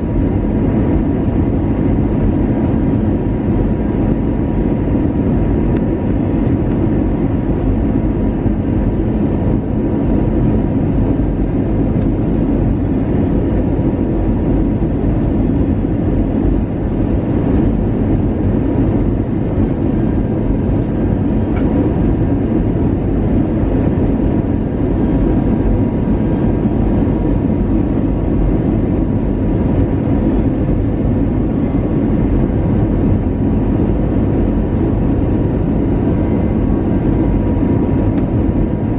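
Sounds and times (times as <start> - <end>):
aircraft cabin engine and airflow noise: 0.0 - 38.9.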